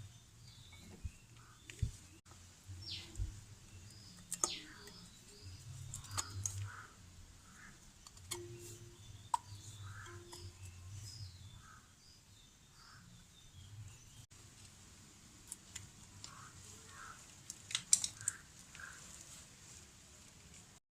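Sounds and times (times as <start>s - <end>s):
birds chirping: 0.0s - 14.3s
sharp clicks and knocks: 8.0s - 10.7s.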